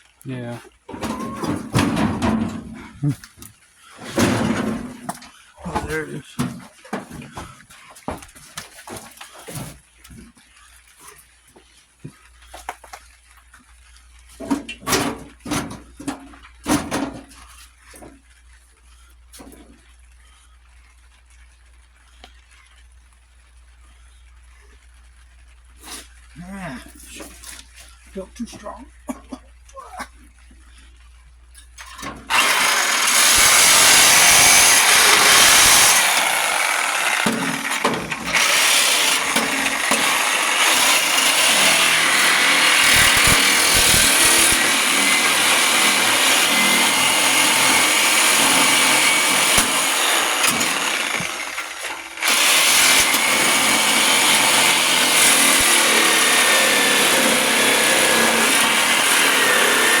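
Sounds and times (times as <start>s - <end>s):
power tool running: 31.8s - 60.0s.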